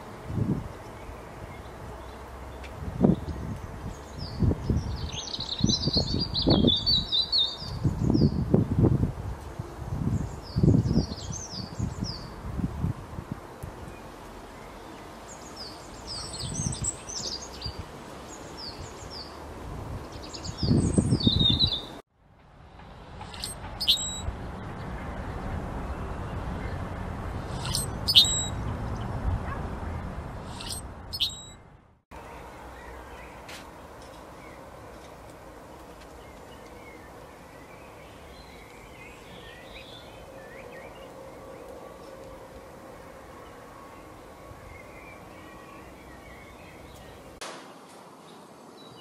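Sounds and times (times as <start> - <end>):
songbirds chirping: 0.0 - 12.6, 13.5 - 22.0, 23.2 - 49.0
bird chip calls: 23.3 - 24.3, 27.6 - 28.6, 30.5 - 31.6
faint bird twittering: 23.3 - 24.3, 27.5 - 28.7, 30.4 - 31.6.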